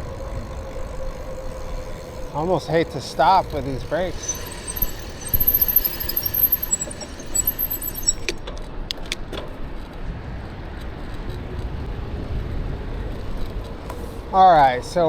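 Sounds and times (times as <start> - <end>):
bike brakes squealing: 0.0 - 8.4
wind and road noise: 0.0 - 15.0
sharp clicks: 4.0 - 9.2.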